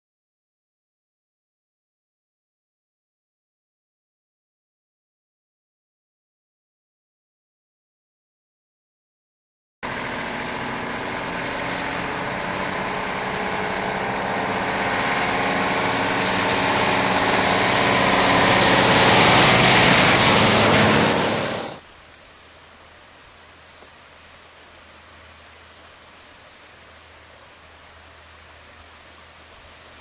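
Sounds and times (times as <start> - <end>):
vehicle engine running: 9.8 - 21.8
steady hiss: 18.0 - 30.0.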